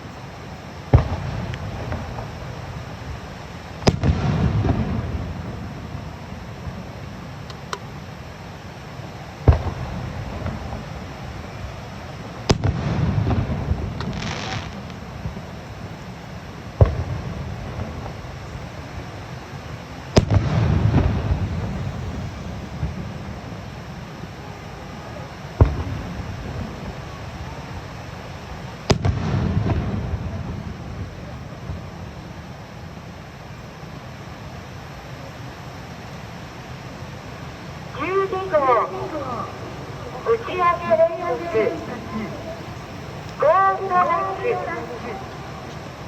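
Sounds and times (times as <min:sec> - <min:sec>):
crackling hiss: 0:00.0 - 0:46.0
small firework cracks: 0:00.9 - 0:02.6, 0:03.8 - 0:05.4, 0:12.4 - 0:15.7, 0:16.8 - 0:18.5, 0:20.1 - 0:23.2, 0:28.9 - 0:30.8
firework booms: 0:00.9 - 0:03.2, 0:03.8 - 0:06.8, 0:09.4 - 0:11.1, 0:12.4 - 0:15.6, 0:16.8 - 0:19.1, 0:20.1 - 0:23.6, 0:25.5 - 0:27.2, 0:28.8 - 0:32.2
rumbling crackling tail: 0:20.2 - 0:23.6.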